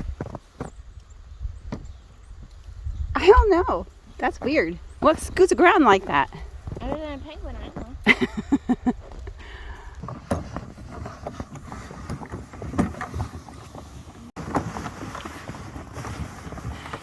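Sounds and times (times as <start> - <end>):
wind rumble on microphone: 0.0 - 17.0
footsteps crunching in snow: 13.3 - 17.0.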